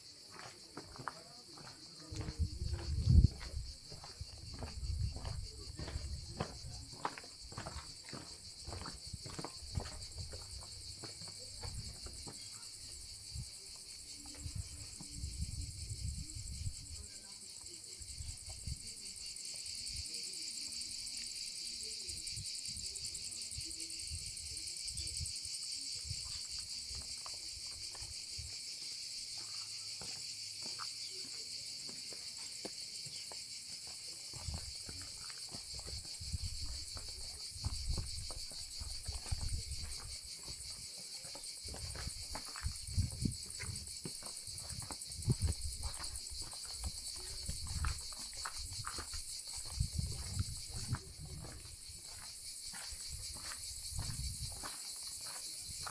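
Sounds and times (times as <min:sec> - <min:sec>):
insects chorus: 0:00.0 - 0:55.9.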